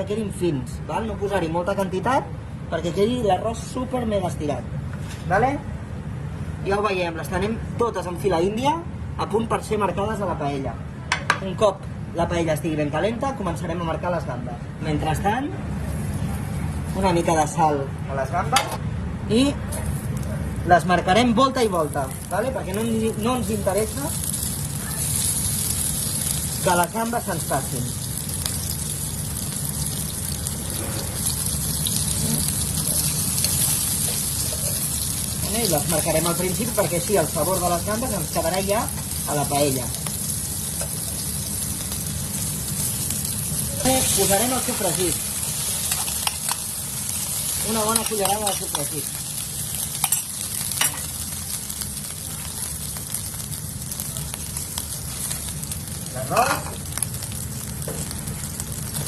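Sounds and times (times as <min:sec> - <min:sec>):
prawns sizzling in hot oil: 0:21.6 - 0:59.0.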